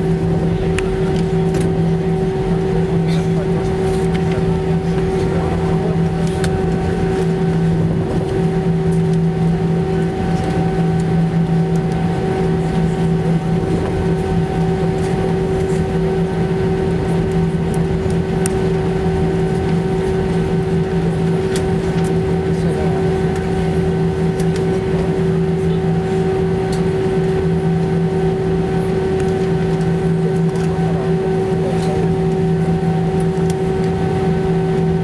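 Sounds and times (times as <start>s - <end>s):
jet engines roaring in cabin: 0.0s - 35.0s.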